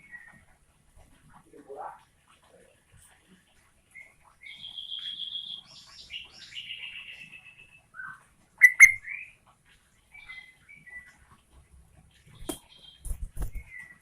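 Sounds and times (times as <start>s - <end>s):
bird singing trilled whistles: 4.6s - 7.1s, 7.9s - 9.4s.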